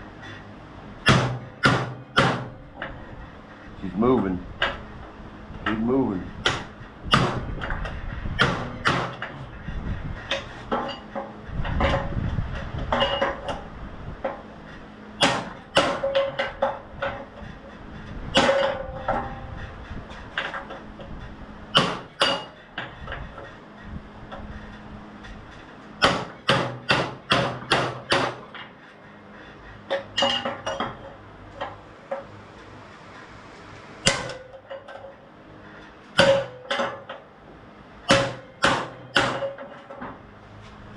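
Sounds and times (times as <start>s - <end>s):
hammer striking metal: 1.0s - 2.9s, 8.4s - 9.3s, 15.2s - 16.8s, 21.7s - 22.6s, 26.0s - 28.6s, 34.0s - 35.1s, 36.2s - 37.2s, 38.1s - 39.8s.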